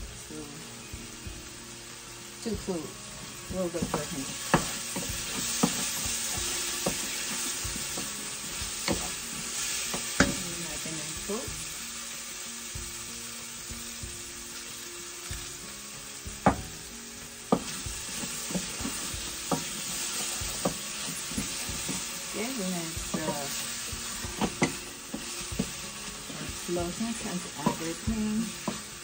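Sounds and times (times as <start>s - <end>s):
vegetables sizzling in oil: 0.0s - 29.0s
wooden spatula knocking pot: 3.7s - 8.2s, 8.8s - 9.2s, 9.9s - 10.5s, 16.4s - 16.8s, 24.2s - 26.6s, 27.4s - 28.9s.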